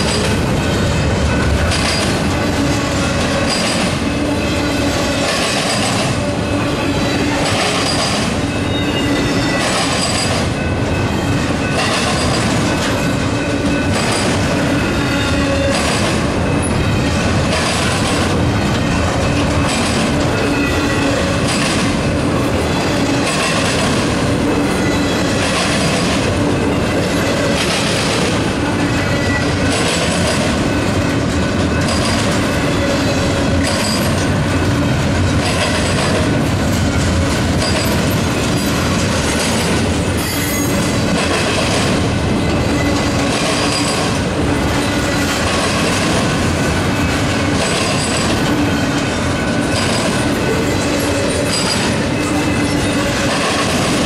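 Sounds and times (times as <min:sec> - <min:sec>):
train wheels clacking over joints: 0:00.0 - 0:54.0
wheel squeal: 0:01.3 - 0:16.9, 0:28.9 - 0:29.9, 0:37.6 - 0:41.0, 0:49.5 - 0:53.5.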